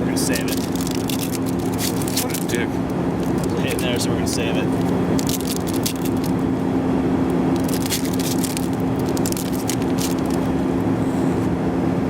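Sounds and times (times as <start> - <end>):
jet airliner cabin drone: 0.0 - 12.0
card wrappers crackling: 0.2 - 2.6, 3.2 - 3.8, 4.7 - 6.4, 7.6 - 10.5.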